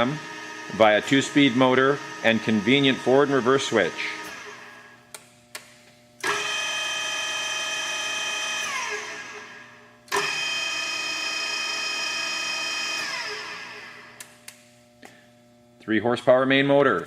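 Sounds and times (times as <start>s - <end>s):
drill motor whining: 0.0s - 5.0s, 6.2s - 14.2s
drill motor winding down: 0.0s - 5.0s, 6.2s - 14.2s.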